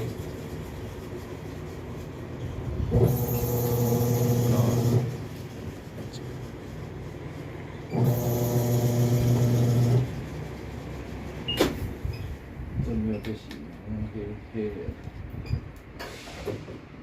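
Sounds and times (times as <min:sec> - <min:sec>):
washing machine motor humming: 0:02.7 - 0:06.0, 0:07.9 - 0:10.8.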